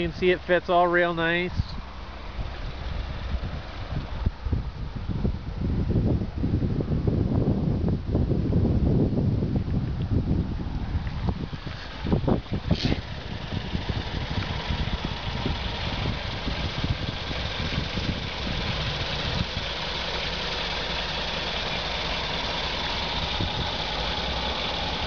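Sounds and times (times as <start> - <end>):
car engine idling: 0.0 - 5.7, 10.1 - 25.0.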